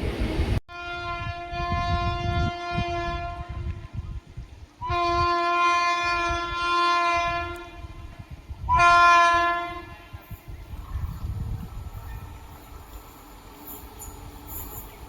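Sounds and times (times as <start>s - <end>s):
passing train rumble: 0.0s - 15.0s
locomotive horn blasts: 0.7s - 3.8s, 4.8s - 8.0s, 8.7s - 10.2s.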